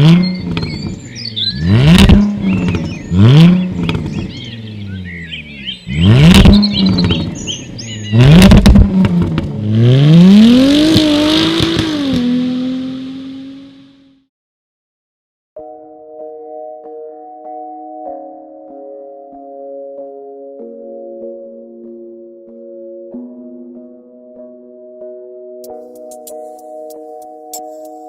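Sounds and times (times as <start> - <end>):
birds chirping: 0.0 - 8.7
car engine revving: 0.0 - 14.2
exhaust crackles and pops: 1.8 - 4.4, 8.2 - 9.6, 10.3 - 12.3.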